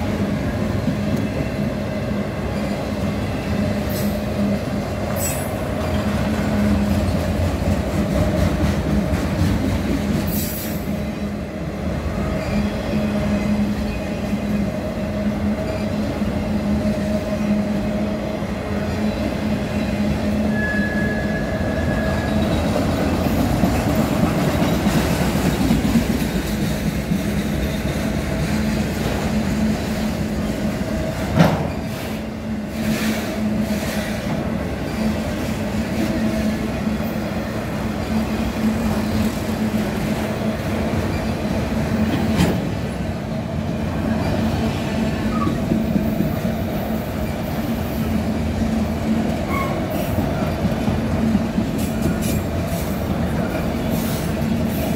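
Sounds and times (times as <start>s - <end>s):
train wheels rumbling on rails: 0.0s - 54.9s
wheel squeal: 20.5s - 22.5s.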